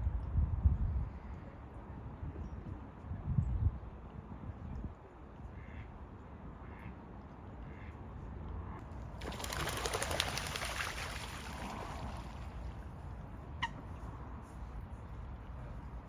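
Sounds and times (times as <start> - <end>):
wings flapping: 9.2 - 12.3.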